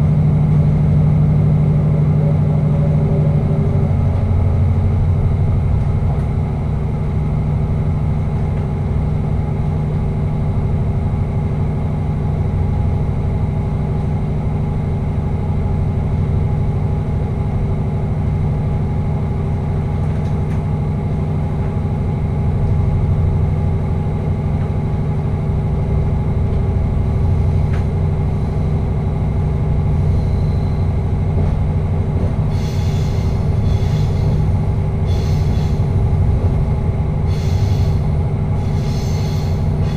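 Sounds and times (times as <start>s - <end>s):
constant hum: 0.0s - 39.9s
train rumble in tunnel: 0.0s - 39.9s
short high hissing bursts: 37.3s - 38.0s.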